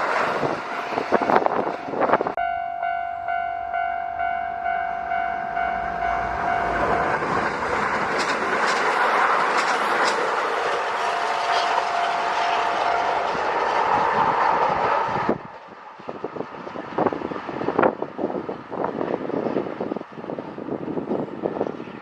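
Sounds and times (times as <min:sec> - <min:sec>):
level-crossing warning bell: 0:00.6 - 0:14.0
wheels clattering over rail joints: 0:05.8 - 0:17.2.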